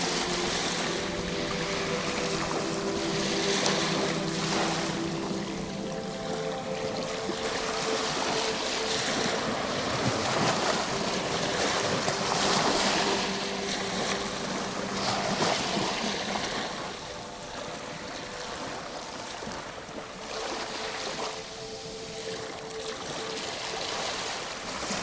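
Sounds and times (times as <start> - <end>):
ocean surf washing on shore: 0.0 - 25.0
soft relaxation music: 0.0 - 25.0.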